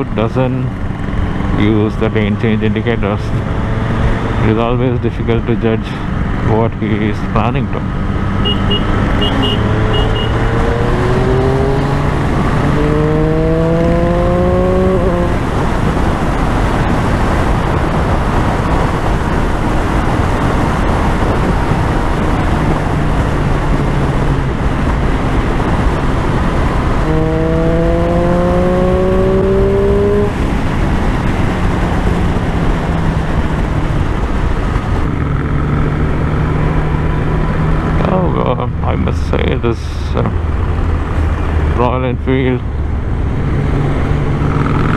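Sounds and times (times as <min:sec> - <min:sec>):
motorcycle engine accelerating: 0:00.0 - 0:05.0, 0:07.5 - 0:44.9
wind noise on microphone: 0:08.0 - 0:38.0.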